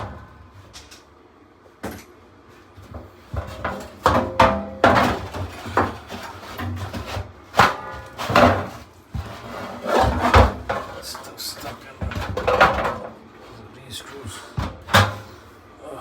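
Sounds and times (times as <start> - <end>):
sheet metal parts clattering: 3.3 - 13.2.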